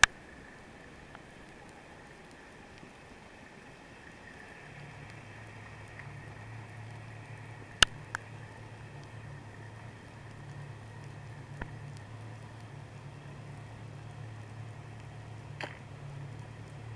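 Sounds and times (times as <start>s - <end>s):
low hum of boat engine: 0.0s - 16.9s
sharp clicks: 7.8s - 8.2s.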